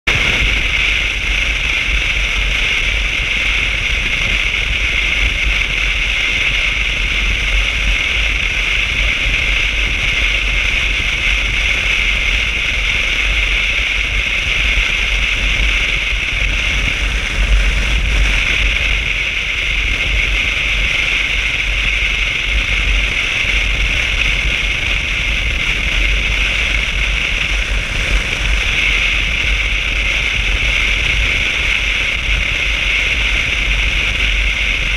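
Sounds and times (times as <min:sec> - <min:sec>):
motorcycle engine rumble: 0:00.0 - 0:34.9
wind and road noise: 0:00.0 - 0:34.9.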